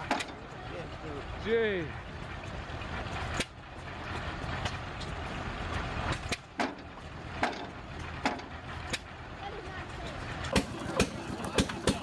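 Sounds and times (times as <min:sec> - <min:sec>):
machine low rumble: 0:00.0 - 0:12.0
sharp knocks: 0:06.3 - 0:08.5.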